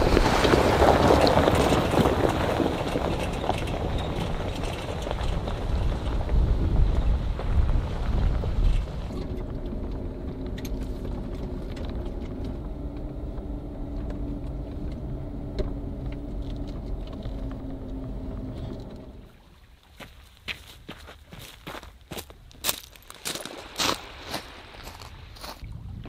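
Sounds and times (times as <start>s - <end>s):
car engine running: 1.2s - 19.3s.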